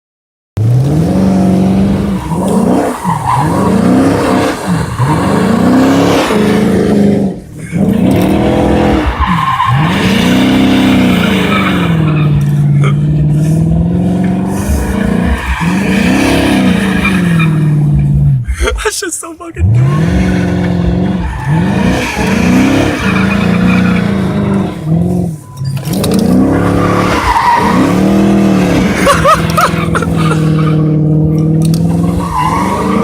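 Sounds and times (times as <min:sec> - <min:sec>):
car engine revving: 0:00.6 - 0:18.7, 0:19.6 - 0:33.0
tyres sliding on wet pavement: 0:32.0 - 0:33.0.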